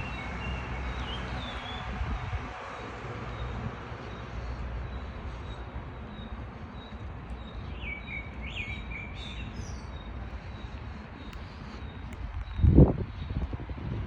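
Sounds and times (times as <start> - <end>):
birds chirping: 2.6 - 13.5.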